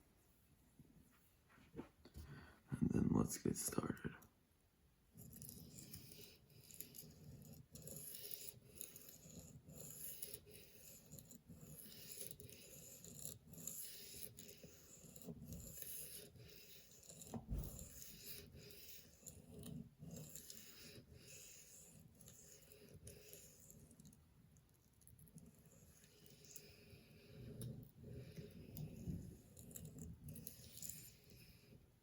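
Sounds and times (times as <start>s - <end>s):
soft low thump: 17.4s - 17.8s
knife scraping on sharpening stone: 29.0s - 31.2s.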